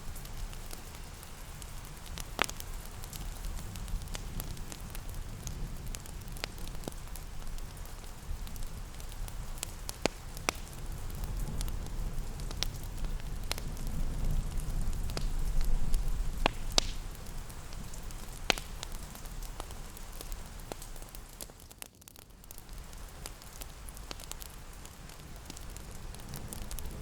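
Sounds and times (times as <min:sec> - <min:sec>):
fireplace crackling and popping: 0:00.0 - 0:27.0
soft rain: 0:00.0 - 0:27.0.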